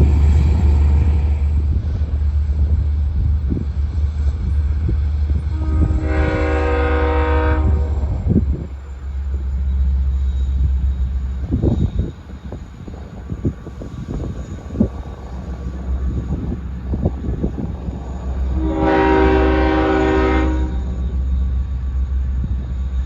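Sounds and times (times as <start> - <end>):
diesel train engine rumble: 0.0 - 23.0
train horn: 5.5 - 8.4, 18.4 - 21.2.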